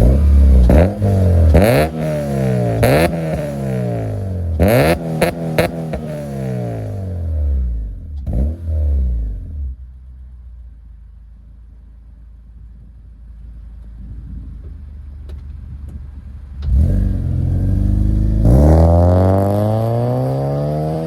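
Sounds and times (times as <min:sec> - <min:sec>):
car engine revving: 0:00.0 - 0:09.9, 0:16.5 - 0:21.0
car engine idling: 0:09.2 - 0:18.4.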